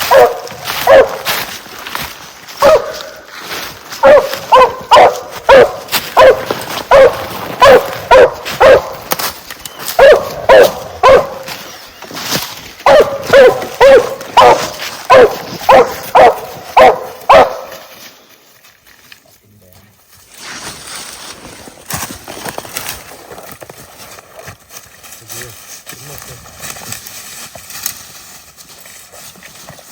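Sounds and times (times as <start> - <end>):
hound barking: 0.0 - 1.4, 2.6 - 3.3, 4.0 - 9.1, 9.8 - 11.6, 12.8 - 17.9.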